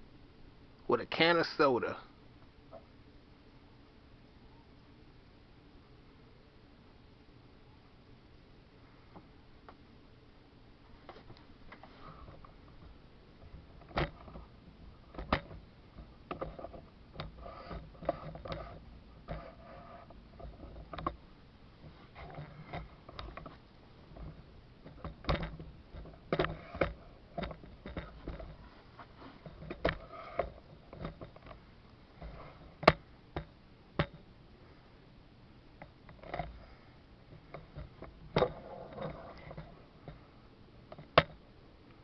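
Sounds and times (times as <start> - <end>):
faint low hum: 0.0 - 42.0
light clicks and knocks: 11.0 - 21.2, 21.8 - 31.6.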